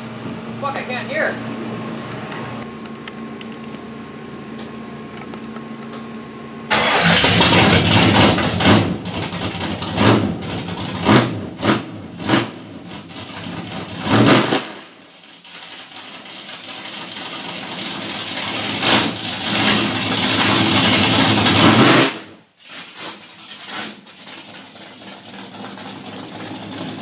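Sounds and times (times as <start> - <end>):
car engine revving: 6.7 - 15.0, 17.7 - 22.3.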